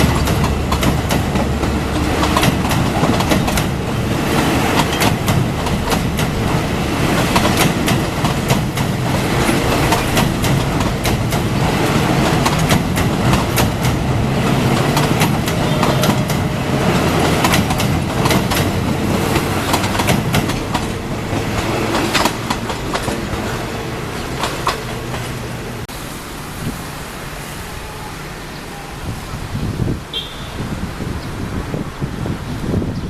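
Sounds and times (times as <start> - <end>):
train wheels clattering on rails: 0.0 - 25.8
low train rumble: 0.0 - 33.0.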